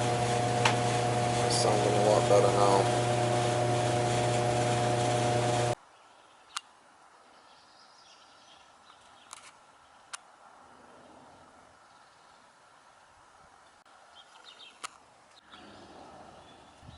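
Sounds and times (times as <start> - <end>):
furnace blower humming: 0.0 - 5.8.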